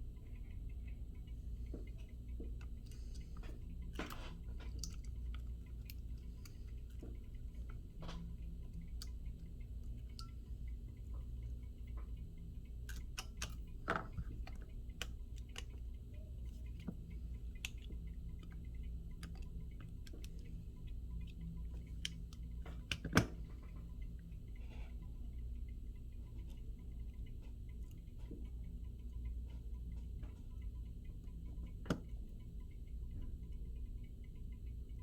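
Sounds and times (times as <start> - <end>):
steady low hum: 0.0 - 35.0
small tools clicking and tapping: 1.7 - 12.2, 12.8 - 20.5.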